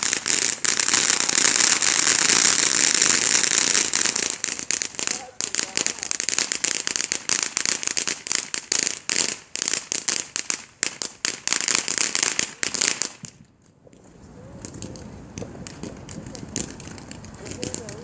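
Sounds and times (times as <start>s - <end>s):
faint hiss: 0.0s - 13.4s
fireworks bangs and crackles: 0.0s - 18.0s.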